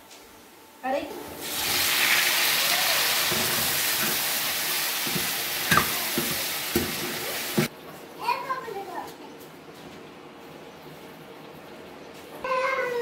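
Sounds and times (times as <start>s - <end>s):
tomatoes sizzling in hot oil: 1.4s - 7.7s
spatula knocking against pan: 5.0s - 7.7s.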